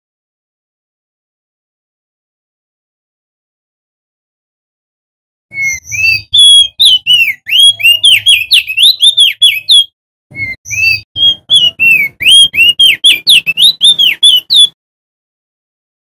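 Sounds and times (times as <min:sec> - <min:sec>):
bird singing whistled notes: 0:05.5 - 0:14.8.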